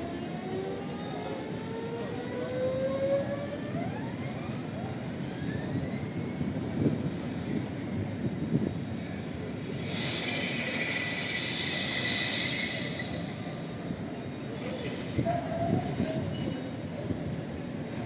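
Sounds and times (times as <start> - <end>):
rumble of tram wheels: 0.0 - 18.0
street noise: 0.0 - 18.0
tram motor whine rising: 9.3 - 14.4.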